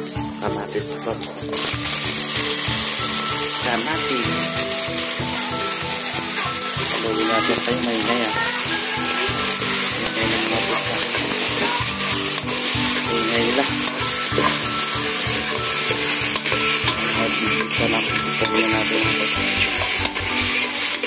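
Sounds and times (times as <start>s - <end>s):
vegetables sizzling in hot oil: 0.0s - 21.0s
metal ladle scraping pot: 8.8s - 21.0s.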